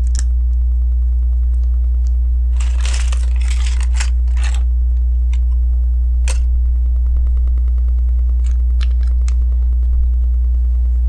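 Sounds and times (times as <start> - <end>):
plastic pieces rustling: 0.0 - 0.3, 2.5 - 5.6, 8.4 - 9.4
low electrical hum: 0.0 - 11.0.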